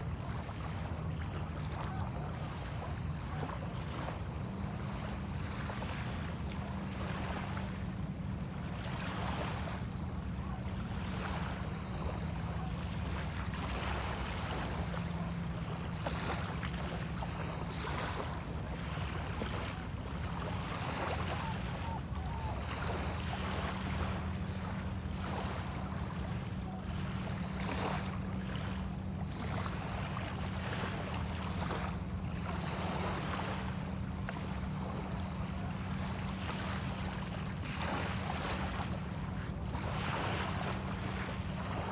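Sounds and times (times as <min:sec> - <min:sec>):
low steady hum: 0:00.0 - 0:41.9
waves lapping on shore: 0:00.0 - 0:41.9.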